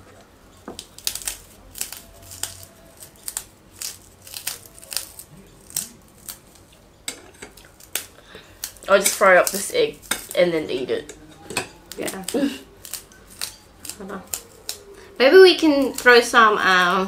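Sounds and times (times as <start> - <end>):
plastic bag crinkling: 0.7 - 6.8, 7.6 - 17.0
snack pieces crunching: 0.8 - 6.8, 7.4 - 10.4, 11.7 - 16.1.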